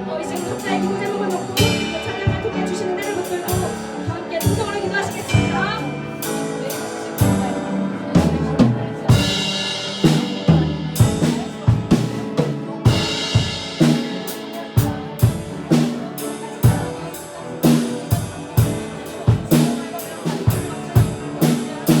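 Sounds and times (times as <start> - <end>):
piano chords: 0.0 - 22.0
drum kit beat: 0.3 - 22.0
cymbal crashes: 12.8 - 15.4.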